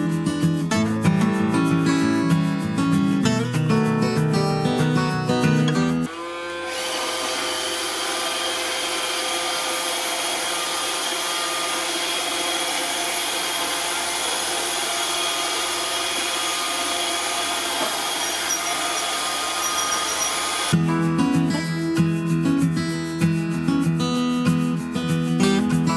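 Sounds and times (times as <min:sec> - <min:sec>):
robot vacuum whirring: 0:06.1 - 0:20.8.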